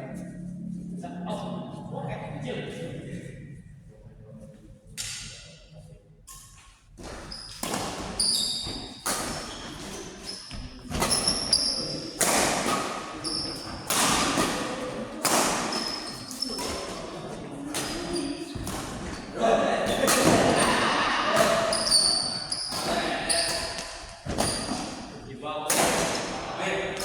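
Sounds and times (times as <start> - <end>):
high-pitched shoe squeaks: 8.2 - 12.1, 21.7 - 23.7.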